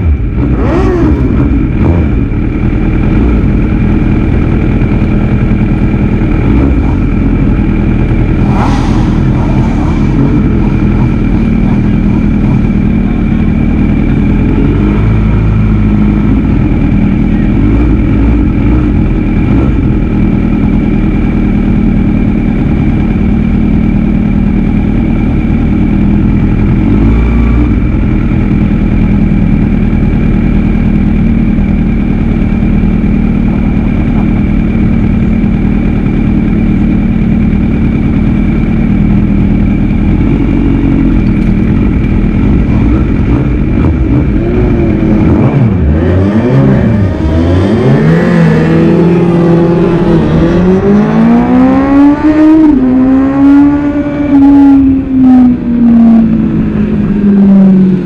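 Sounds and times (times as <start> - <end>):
motorcycle engine idling: 0.0 - 8.4, 10.0 - 26.9, 27.6 - 45.9
other race bikes idling: 0.1 - 27.0, 27.6 - 45.9.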